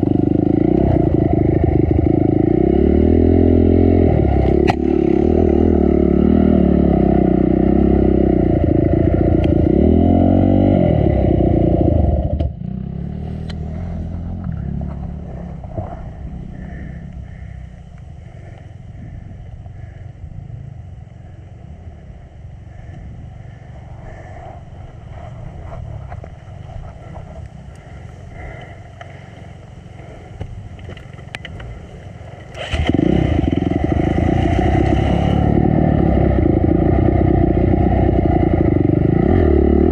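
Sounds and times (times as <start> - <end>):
dirt bike engine revving: 0.0 - 19.2, 32.4 - 39.9.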